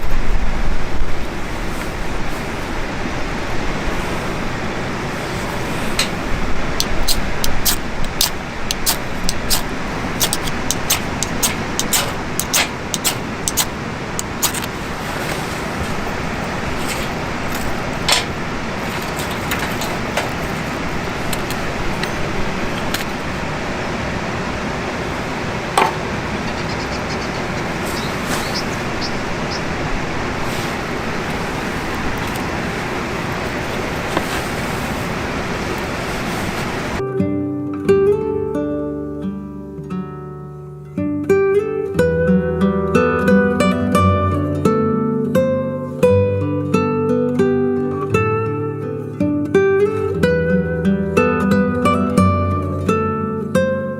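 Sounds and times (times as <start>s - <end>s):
campfire crackling and popping: 6.0s - 14.9s.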